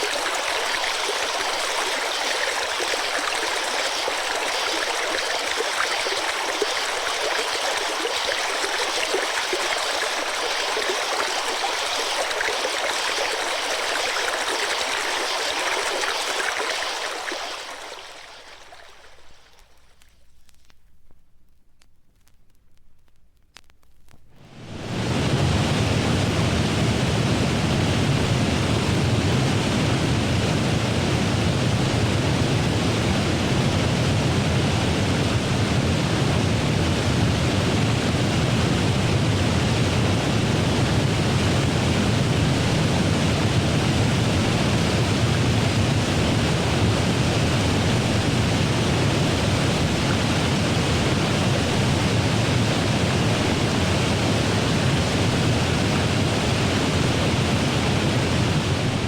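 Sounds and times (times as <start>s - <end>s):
steady rushing noise: 24.4s - 59.0s.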